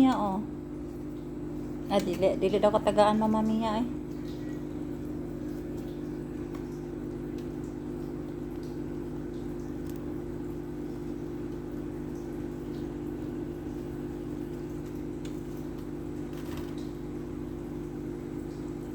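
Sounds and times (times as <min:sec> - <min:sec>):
mechanical motor hum: 0:00.0 - 0:18.9.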